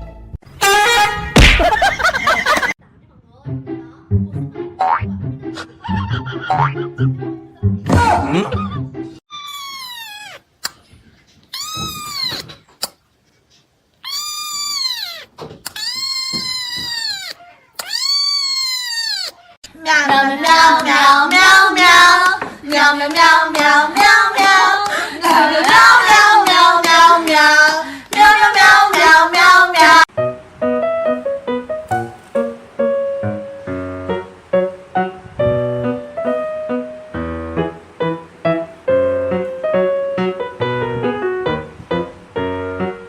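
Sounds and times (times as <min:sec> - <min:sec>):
cat meowing: 0:09.3 - 0:10.5, 0:11.5 - 0:12.5, 0:14.0 - 0:19.6.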